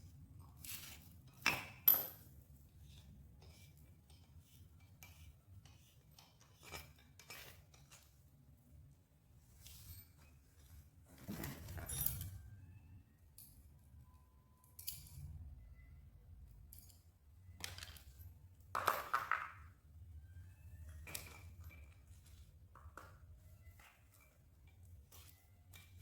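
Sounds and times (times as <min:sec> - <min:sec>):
metal tools clinking: 0:11.2 - 0:12.4.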